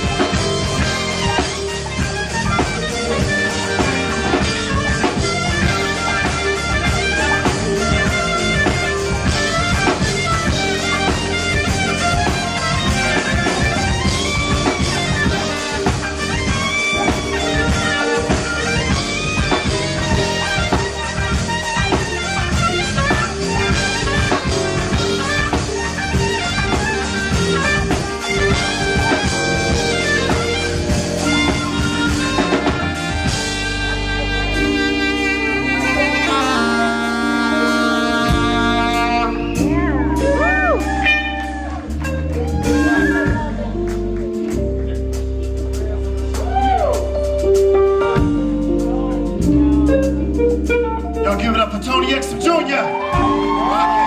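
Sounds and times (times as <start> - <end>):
jazz band with drum kit: 0.0 - 54.0
saxophone melody: 0.0 - 54.0.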